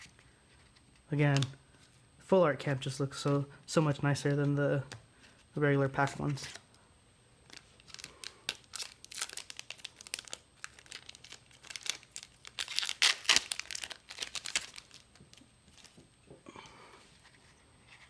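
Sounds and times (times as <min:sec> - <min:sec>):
wrapper crinkling and tearing: 0:07.4 - 0:16.0.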